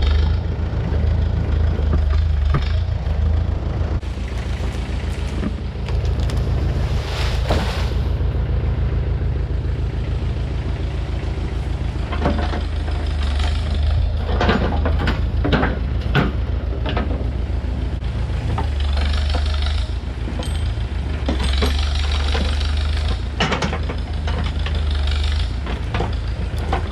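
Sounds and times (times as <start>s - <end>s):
diesel engine running: 0.0s - 26.9s
sharp metal clanks and knocks: 12.1s - 17.2s, 20.3s - 24.8s.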